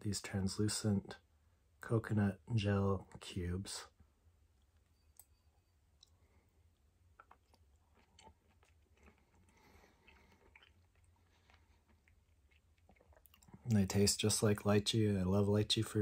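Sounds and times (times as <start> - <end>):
low steady hum: 0.0 - 16.0
faint chewing: 4.6 - 13.9
wet mouth clicks: 7.1 - 11.1.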